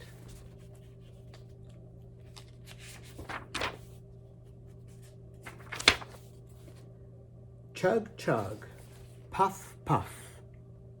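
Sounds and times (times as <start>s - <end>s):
paper rustling: 0.0s - 6.9s, 8.4s - 9.3s
steady low hum: 0.0s - 11.0s.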